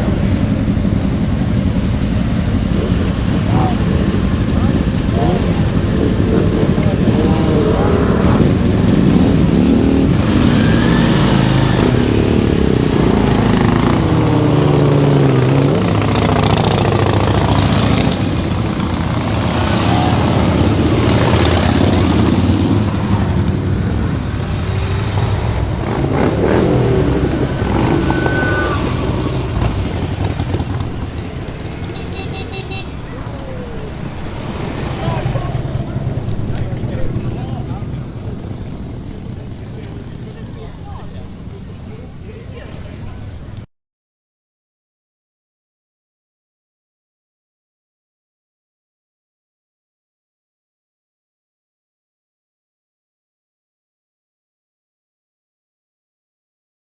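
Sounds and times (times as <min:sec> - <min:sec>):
motorcycles riding past: 0:00.0 - 0:43.6.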